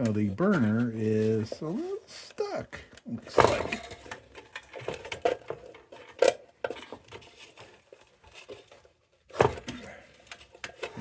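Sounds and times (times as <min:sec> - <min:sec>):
metal clinks and knocks: 0:03.3 - 0:07.4.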